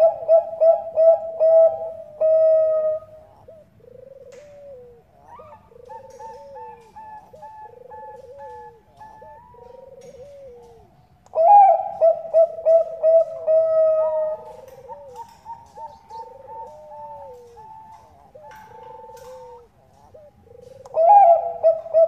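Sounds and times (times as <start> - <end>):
dove cooing song: 0.0 - 22.0.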